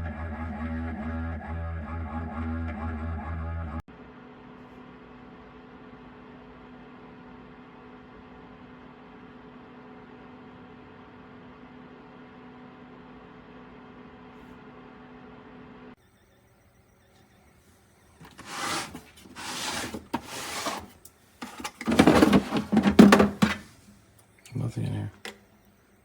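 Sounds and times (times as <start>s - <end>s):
dehumidifier humming: 17.1s - 26.0s.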